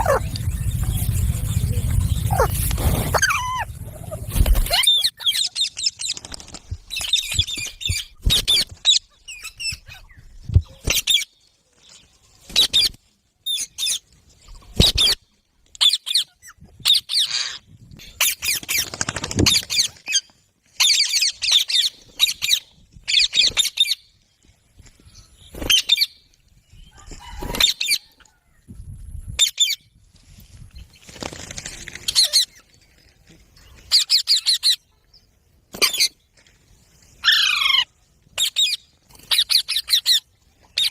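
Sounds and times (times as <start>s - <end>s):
parakeets chattering and squawking: 0.0s - 6.2s, 37.2s - 40.2s.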